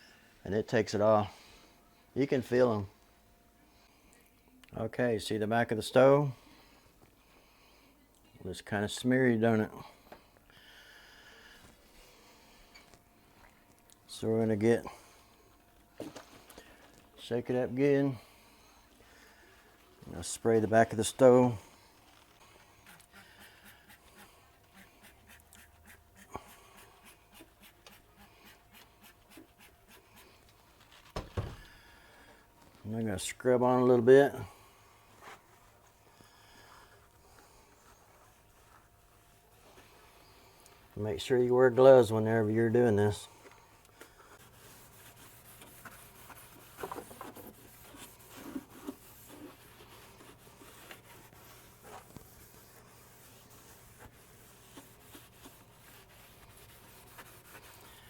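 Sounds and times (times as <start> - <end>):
faint scrubbing on stove: 43.1 - 58.0.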